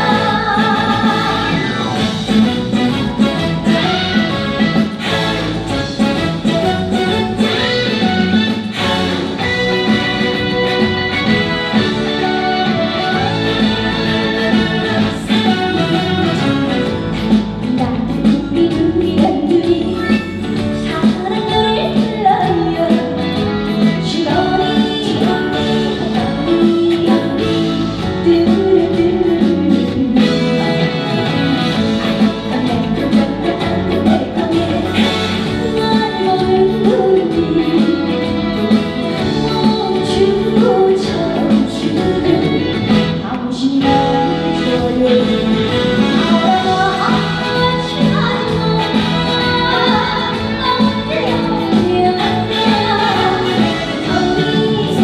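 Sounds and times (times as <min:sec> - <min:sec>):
guitar: 0:00.0 - 0:55.0
live band instrumental music: 0:00.0 - 0:55.0.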